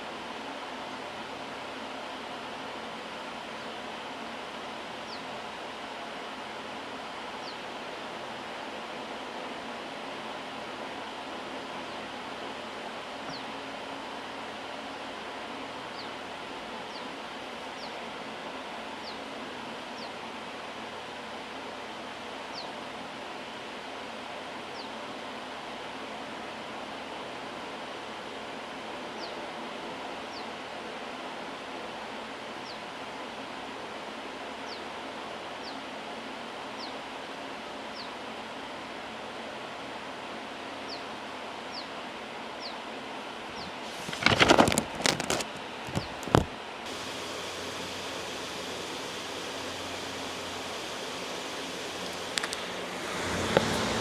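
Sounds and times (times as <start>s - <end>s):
loud white noise: 43.5s - 54.0s
knocks and rustling: 43.9s - 46.6s, 52.0s - 54.0s.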